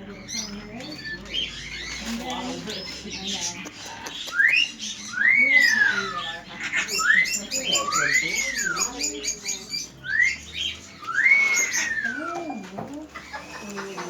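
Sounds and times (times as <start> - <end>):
soft low bird chatter: 0.0 - 14.0
bird whistling a phrase: 4.2 - 14.0.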